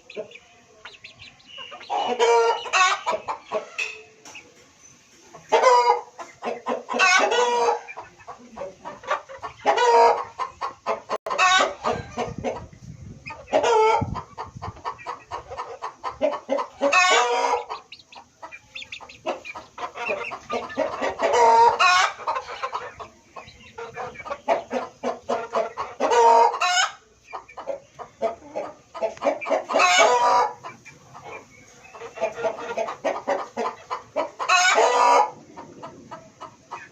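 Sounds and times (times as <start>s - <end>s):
chickens clucking: 0.0s - 36.9s.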